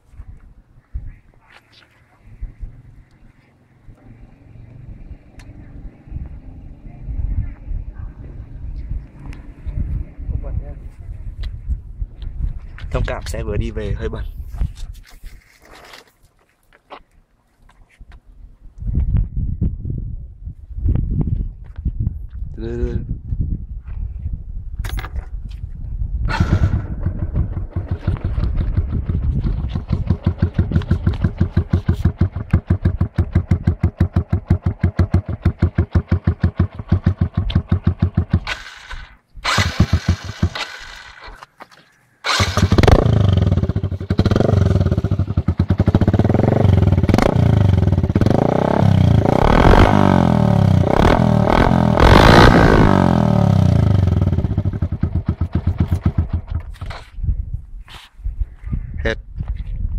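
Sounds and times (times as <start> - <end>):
motorcycle engine revving: 26.3 - 41.4, 42.2 - 56.7
motorcycle engine idling: 26.7 - 39.1, 42.5 - 48.3, 53.7 - 56.6.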